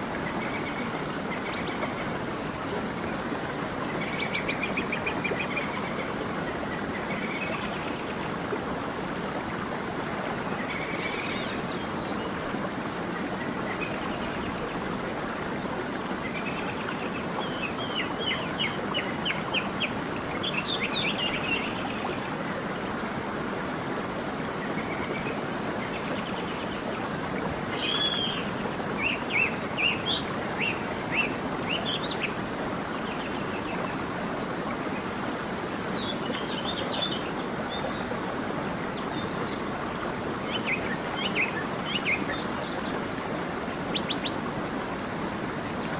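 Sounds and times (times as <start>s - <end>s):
stream running: 0.0s - 45.9s
songbirds calling: 13.2s - 22.3s, 24.5s - 38.2s, 38.9s - 43.1s.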